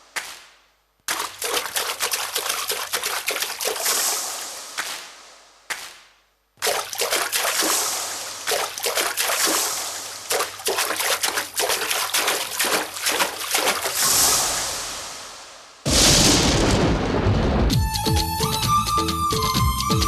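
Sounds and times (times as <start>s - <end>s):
rain patter and splash: 1.1s - 5.1s, 6.6s - 17.3s.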